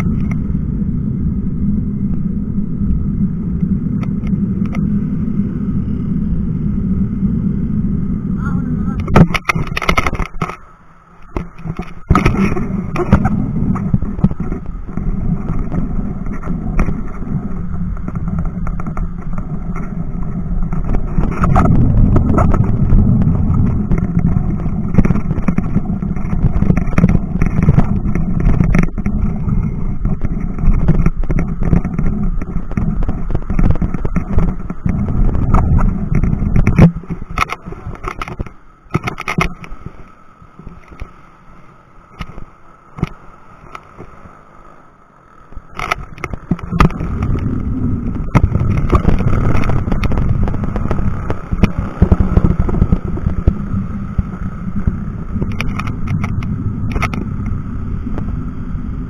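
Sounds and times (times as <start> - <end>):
wind rushing over microphone: 0.0 - 44.9, 45.5 - 59.0
bicycle knocks and rattles: 9.1 - 10.6, 11.3 - 39.7, 45.7 - 54.4.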